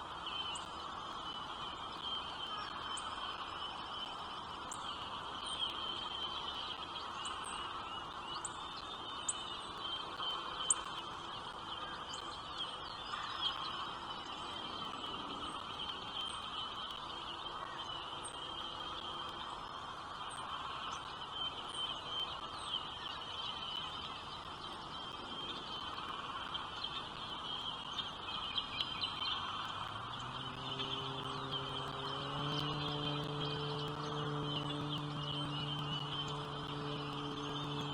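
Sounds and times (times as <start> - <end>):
small birds chirping: 0.2 - 37.9
low droning tone: 28.9 - 37.9
steady high buzz: 29.1 - 37.9.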